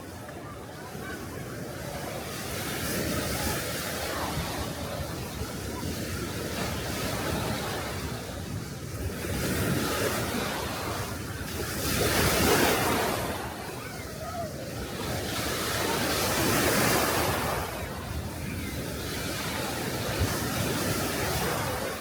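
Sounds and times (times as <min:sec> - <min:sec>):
sea waves washing on beach: 0:00.0 - 0:22.0
wind on microphone: 0:00.0 - 0:22.0.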